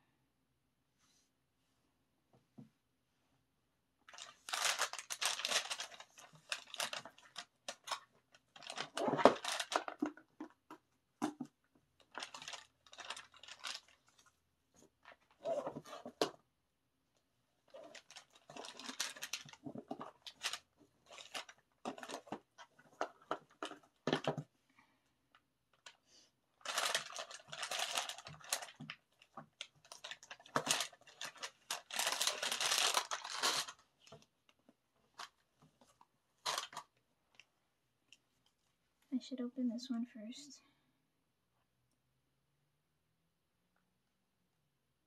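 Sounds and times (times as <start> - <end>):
packaging rustling and tearing: 4.1 - 10.2, 12.0 - 16.3, 17.7 - 24.3, 26.6 - 34.2, 35.1 - 37.4.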